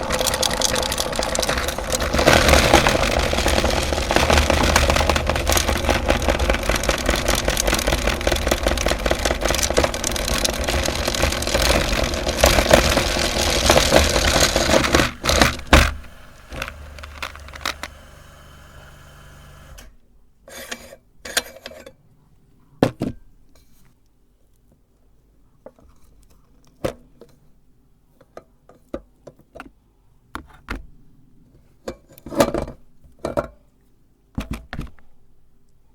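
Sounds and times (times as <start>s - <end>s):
sharp clicks and knocks: 0.0s - 18.0s
meat grinder running: 0.0s - 19.8s.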